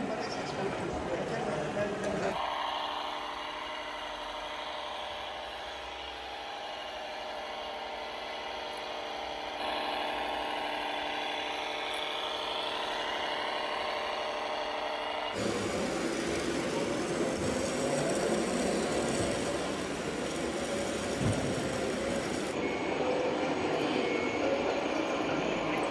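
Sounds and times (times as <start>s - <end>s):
model vehicle mechanical whir: 2.3s - 22.6s.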